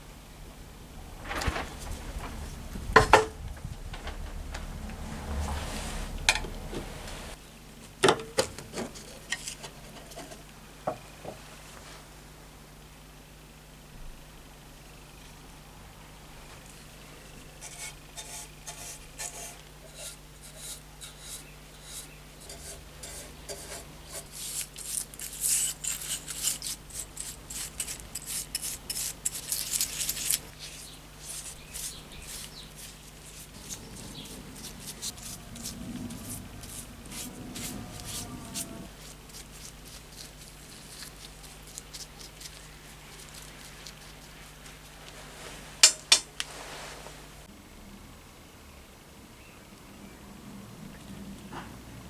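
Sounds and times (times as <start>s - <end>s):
rubbing and scraping on metal: 17.5s - 45.9s.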